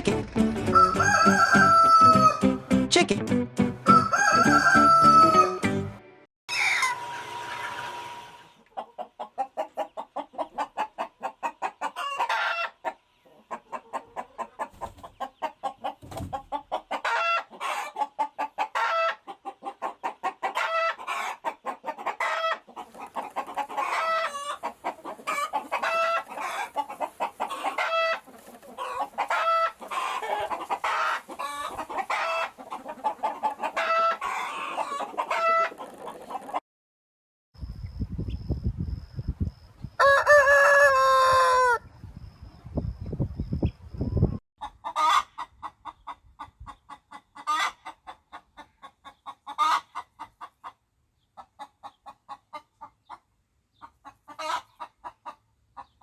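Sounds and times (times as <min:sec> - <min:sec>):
rooster crowing: 0:00.7 - 0:02.4, 0:03.9 - 0:05.6, 0:40.0 - 0:41.8
chickens clucking: 0:06.5 - 0:36.6, 0:43.4 - 0:56.0.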